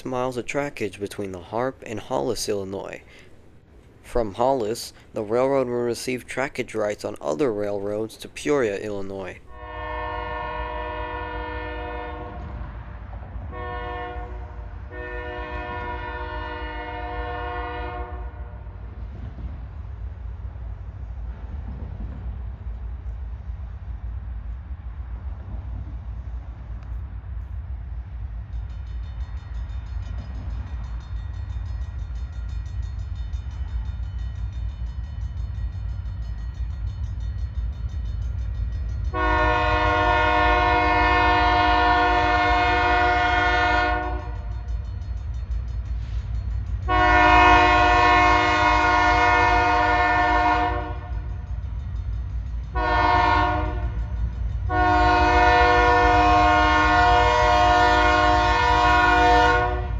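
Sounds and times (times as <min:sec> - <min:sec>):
passing train rumble: 0:00.0 - 0:59.9
train horn blasts: 0:09.5 - 0:12.7, 0:13.4 - 0:18.8, 0:39.1 - 0:44.6, 0:46.8 - 0:51.3, 0:52.7 - 0:54.1, 0:54.7 - 0:59.9.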